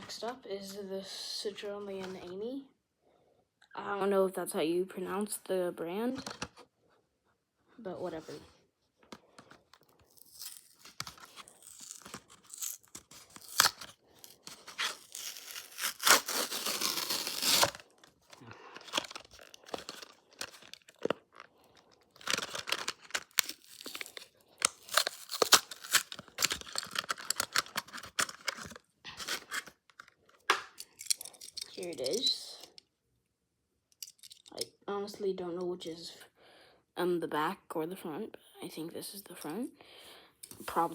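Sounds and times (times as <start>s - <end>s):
blister pack tearing and crackling: 10.0s - 30.1s.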